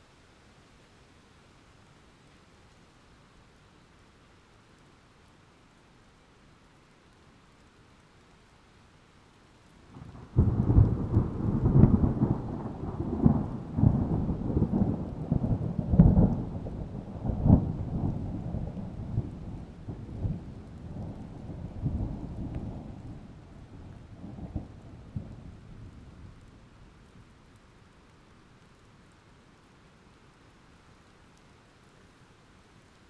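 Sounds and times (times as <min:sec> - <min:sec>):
thunder rolling and cracking: 0:10.0 - 0:26.4.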